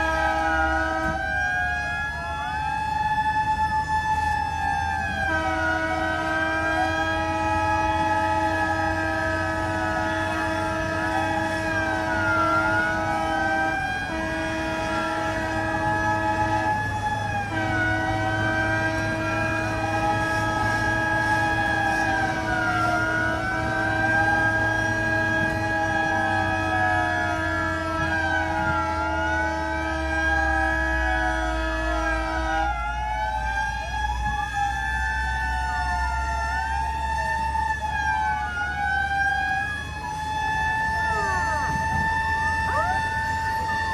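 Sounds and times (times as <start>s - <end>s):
fire truck sirens wailing: 0.0s - 43.9s
steady horn-like tone: 5.3s - 32.7s.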